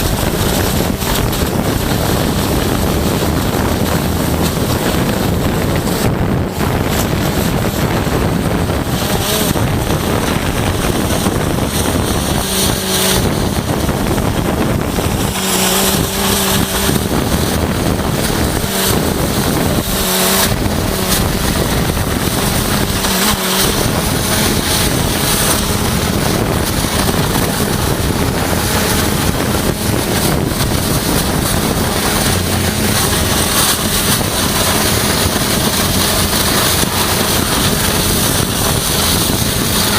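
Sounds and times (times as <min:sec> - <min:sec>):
high-pressure water jet blasting: 0:00.0 - 0:39.9
low machine hum: 0:00.0 - 0:39.9.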